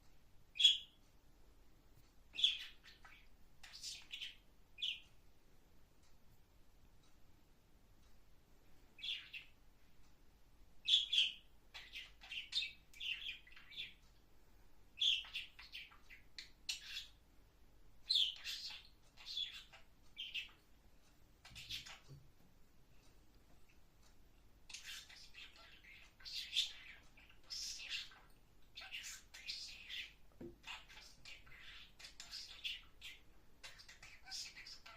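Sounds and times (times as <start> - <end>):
parrot chirping: 0.5 - 1.0, 2.3 - 5.0, 9.0 - 9.6, 10.8 - 14.0, 14.9 - 17.2, 18.0 - 20.7, 21.4 - 22.2, 24.6 - 34.9.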